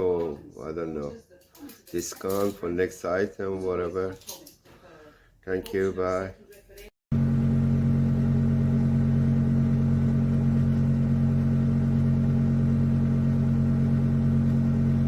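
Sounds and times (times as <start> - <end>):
meat grinder motor humming: 7.2 - 15.0.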